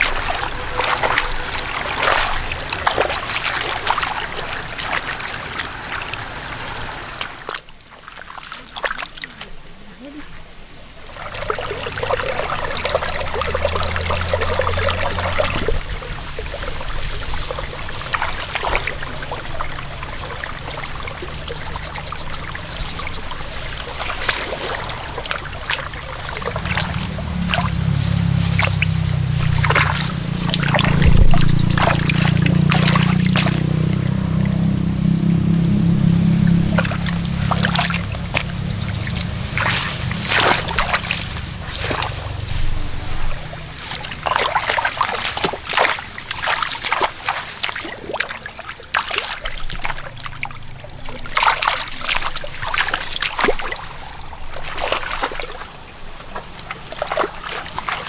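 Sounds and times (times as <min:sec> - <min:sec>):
water splashing and trickling: 0:00.0 - 0:58.0
steady low hum: 0:11.2 - 0:45.2.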